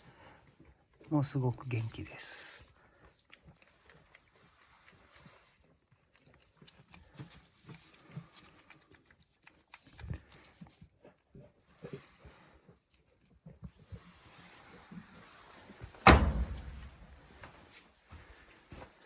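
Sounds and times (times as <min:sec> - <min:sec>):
goats rustling: 0:15.5 - 0:19.0
small knocks: 0:16.0 - 0:17.0
loud thump: 0:16.0 - 0:17.1.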